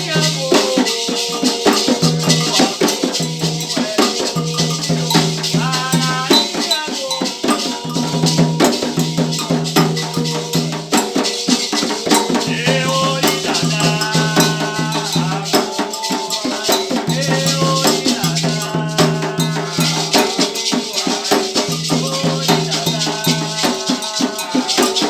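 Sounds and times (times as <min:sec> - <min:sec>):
dense percussion: 0:00.0 - 0:06.8, 0:07.5 - 0:25.0
shaken rattles: 0:00.0 - 0:25.0
voices singing: 0:00.0 - 0:25.0.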